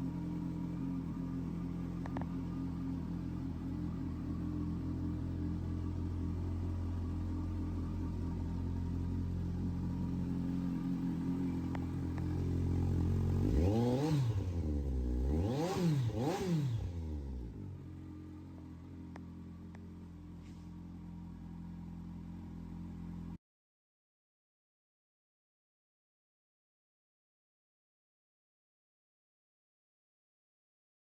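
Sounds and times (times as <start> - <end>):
motorcycle engine idling and revving: 0.0 - 23.4.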